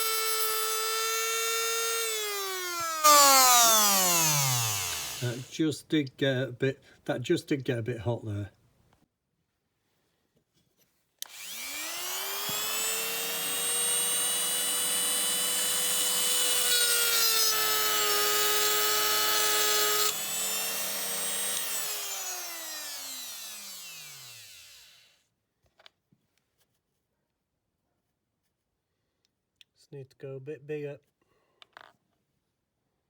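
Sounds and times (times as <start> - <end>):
drill bit cutting metal: 0.0 - 5.5, 11.3 - 25.0
electric drill whining: 0.0 - 5.5, 11.2 - 25.1.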